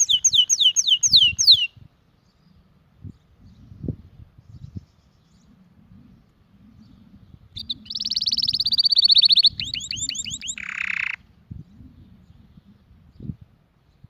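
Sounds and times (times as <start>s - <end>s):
canary singing: 0.0s - 1.8s, 7.5s - 11.2s.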